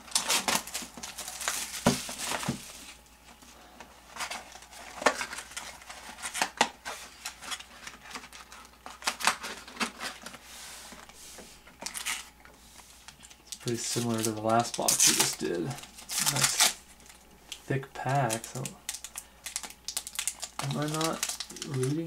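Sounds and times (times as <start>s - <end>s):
wrapping crinkling and tearing: 0.0s - 3.0s, 11.8s - 22.0s.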